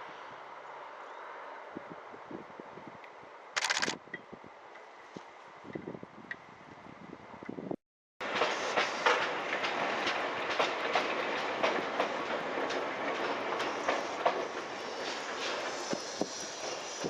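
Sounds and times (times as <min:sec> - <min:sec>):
wheels clicking over rail joints: 0:08.2 - 0:15.7
train wheels rumbling on rail: 0:08.2 - 0:17.0.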